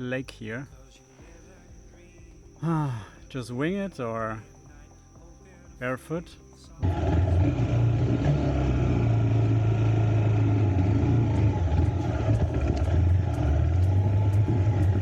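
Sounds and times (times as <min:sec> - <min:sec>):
motorcycle engine at low revs: 0:06.8 - 0:15.0.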